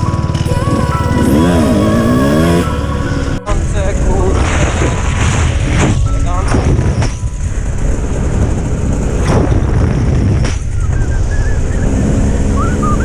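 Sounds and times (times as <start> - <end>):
dirt bike rumble: 0.0 - 13.0
warbling whistle-like tone: 10.6 - 13.0.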